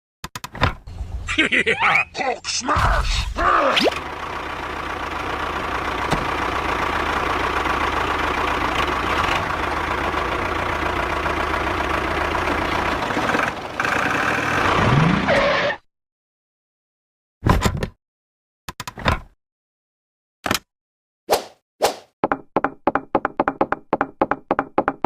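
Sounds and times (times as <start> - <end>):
engine running: 3.9 - 15.3.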